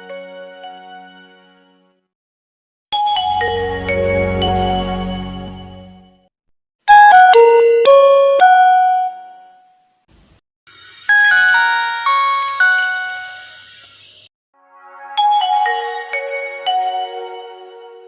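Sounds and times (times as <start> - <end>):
phone ringtone jingle: 6.9 - 9.4, 11.2 - 13.4, 14.7 - 17.4.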